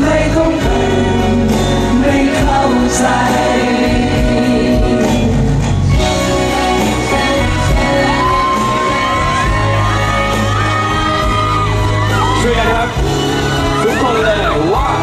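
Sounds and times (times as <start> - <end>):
live pop band music: 0.0 - 15.0
fans screaming and whooping: 6.4 - 15.0.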